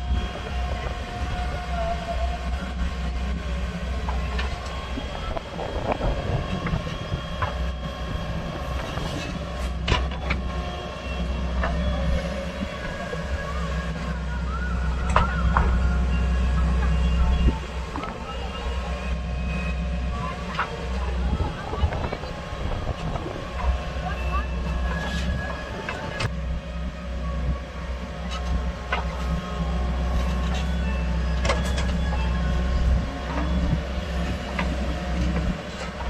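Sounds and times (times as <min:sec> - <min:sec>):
diesel engine running under load: 0:00.0 - 0:36.0
short squeaks from digger arm: 0:08.7 - 0:20.8, 0:28.2 - 0:36.0.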